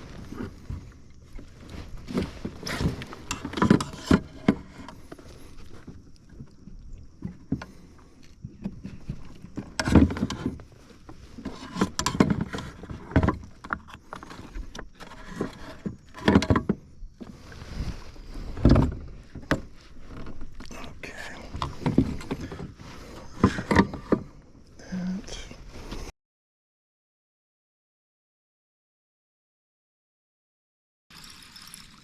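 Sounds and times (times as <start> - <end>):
kayak hull knocks and scrapes: 0.0 - 24.6.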